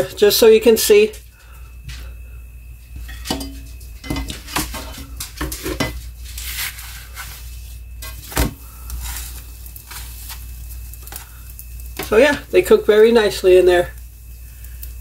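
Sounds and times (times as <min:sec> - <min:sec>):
spatula scraping skillet: 0:03.0 - 0:12.8.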